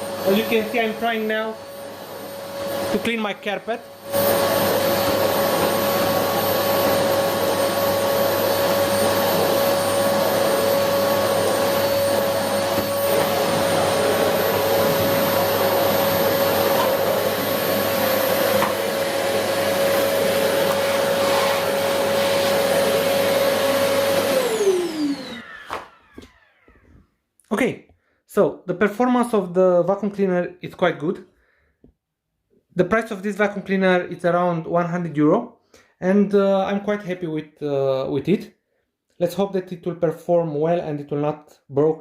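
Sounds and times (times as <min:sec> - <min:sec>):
vacuum cleaner motor whining: 0:00.0 - 0:27.0
vacuum motor winding down: 0:03.8 - 0:27.0.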